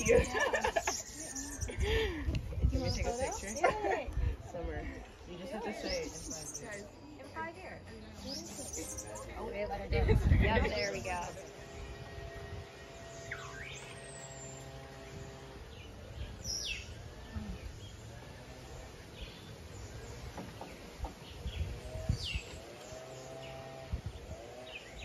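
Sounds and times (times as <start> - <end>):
bird chirps: 0.0 - 1.8, 2.6 - 3.8, 5.6 - 9.6, 10.6 - 18.0.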